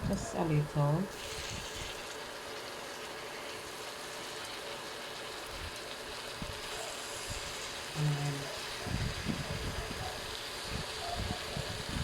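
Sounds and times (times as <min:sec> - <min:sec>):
syrup hissing in a pan: 0:00.2 - 0:12.0.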